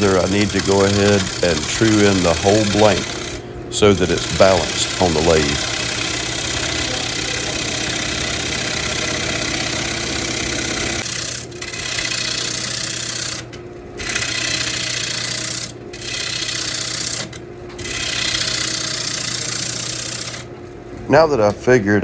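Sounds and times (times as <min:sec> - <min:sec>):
lathe humming: 0:00.0 - 0:22.0.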